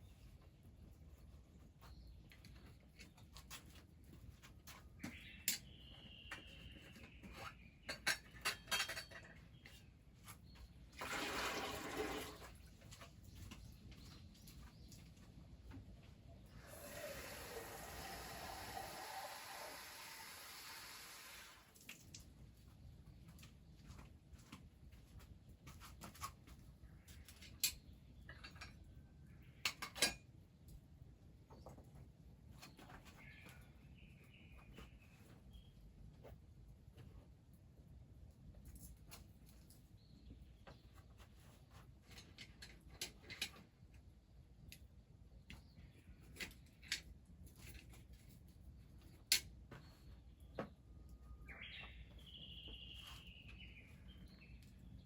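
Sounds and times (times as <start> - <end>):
faint bird chirps: 4.7 - 8.6, 49.7 - 55.0
dishes and utensils clinking: 7.8 - 9.4.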